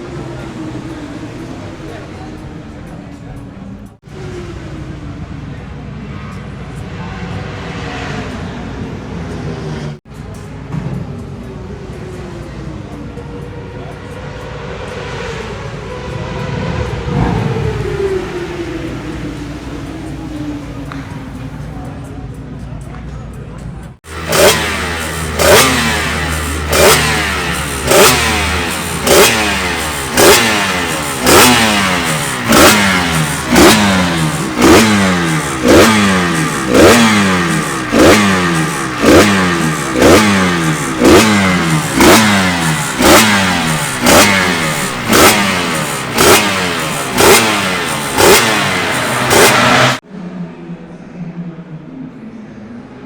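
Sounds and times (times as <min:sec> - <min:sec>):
motorcycle engine revving: 0:13.8 - 0:21.8, 0:24.0 - 0:50.0.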